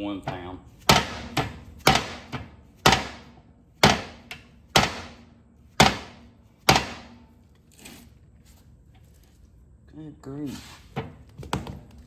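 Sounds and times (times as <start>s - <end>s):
hammer striking steel pin: 0.3s - 7.3s.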